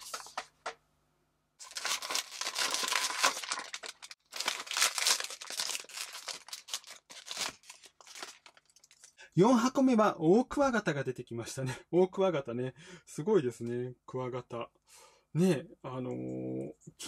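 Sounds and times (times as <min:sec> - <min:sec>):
foil bag crinkling and tearing: 0:01.6 - 0:09.1.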